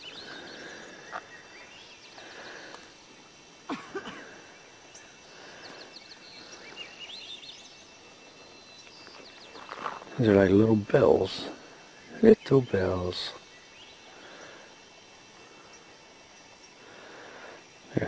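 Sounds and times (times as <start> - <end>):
songbirds chirping and trilling: 0.0 - 18.0.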